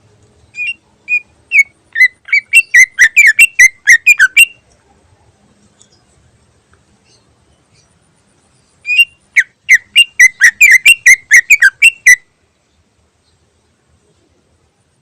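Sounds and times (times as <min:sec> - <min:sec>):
bird whistling song: 0:00.5 - 0:04.6, 0:08.6 - 0:12.3.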